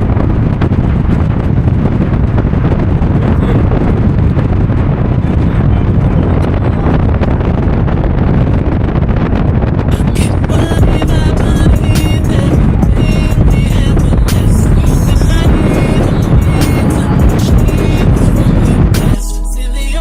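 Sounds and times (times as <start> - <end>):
wind buffeting microphone: 0.0 - 19.2
music: 9.9 - 20.0.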